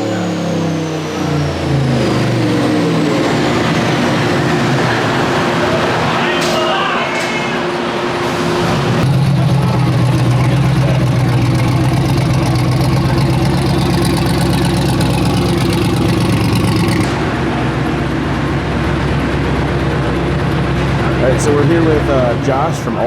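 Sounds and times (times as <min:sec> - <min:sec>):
engine idling: 0:07.5 - 0:23.0.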